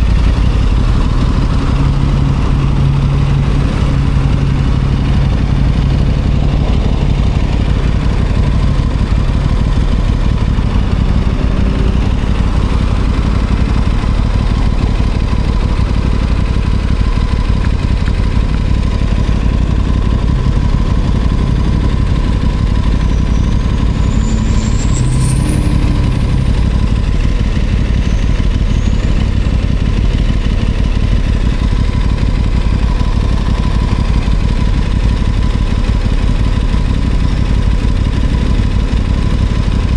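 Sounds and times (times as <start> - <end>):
rushing noise: 0.0 - 28.6
motorcycle engine running: 0.0 - 39.9
high whistle: 22.2 - 29.5.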